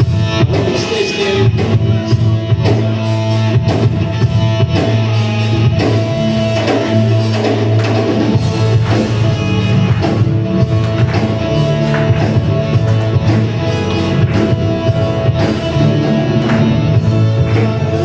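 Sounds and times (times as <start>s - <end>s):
worship band playing: 0.0s - 18.0s.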